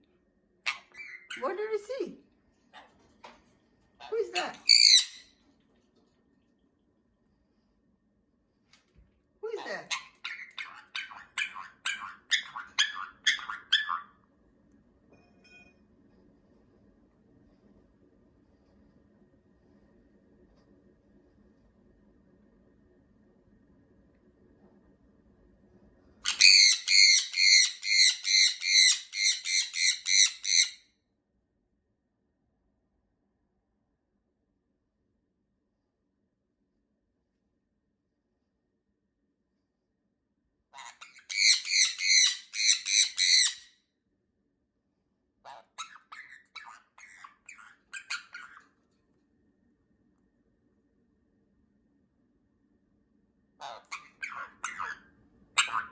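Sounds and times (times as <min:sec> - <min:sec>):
parrot squawking: 0:00.7 - 0:01.9, 0:04.0 - 0:05.3, 0:09.5 - 0:14.2, 0:26.2 - 0:30.8, 0:40.8 - 0:43.7, 0:45.5 - 0:48.7, 0:53.6 - 0:55.9.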